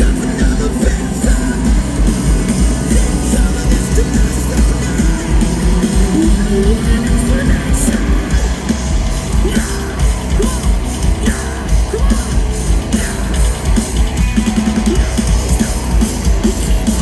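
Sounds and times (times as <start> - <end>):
distorted electric guitars: 0.0 - 17.0
drum kit beat: 0.0 - 17.0.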